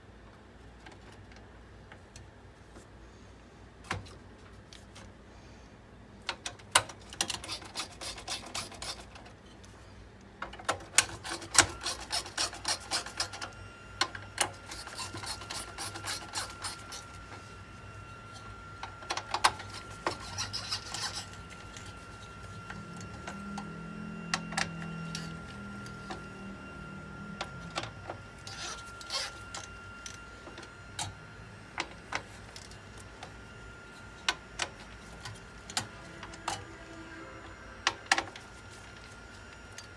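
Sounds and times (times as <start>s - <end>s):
tools scraping parts: 6.8s - 9.7s, 10.6s - 23.7s, 24.3s - 26.3s, 27.5s - 31.2s, 33.9s - 36.8s
faint steady high tone: 16.2s - 39.9s.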